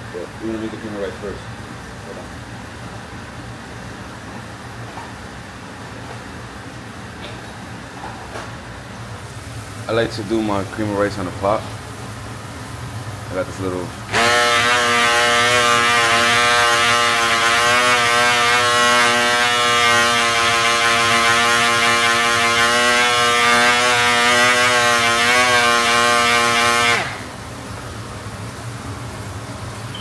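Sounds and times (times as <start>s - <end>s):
small electric motor whirring: 14.1s - 27.3s.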